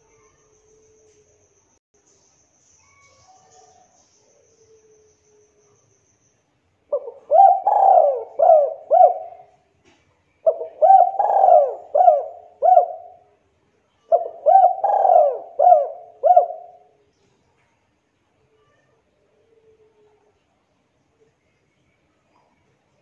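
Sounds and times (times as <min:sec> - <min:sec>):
dove cooing: 0:06.9 - 0:09.5, 0:10.4 - 0:13.2, 0:14.1 - 0:16.9.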